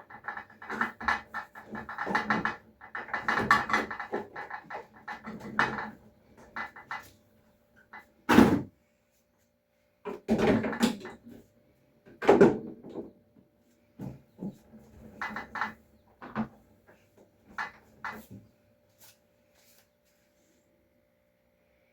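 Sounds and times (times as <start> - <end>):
sharp thunk: 8.3 - 8.7.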